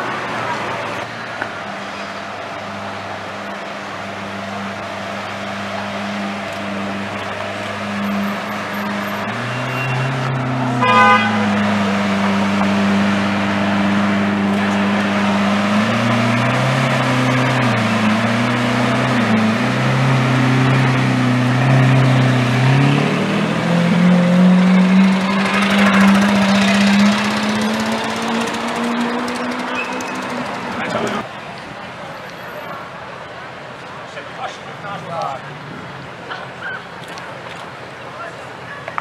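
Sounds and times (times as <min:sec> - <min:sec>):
car horn toot: 0:08.0 - 0:10.2, 0:10.8 - 0:11.6.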